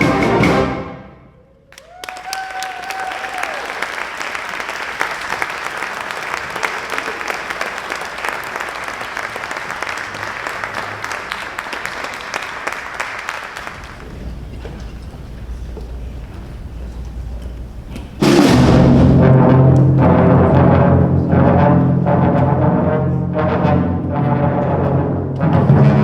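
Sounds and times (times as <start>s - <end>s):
long held whoop: 1.7s - 3.8s
audience applauding and cheering: 1.7s - 18.1s.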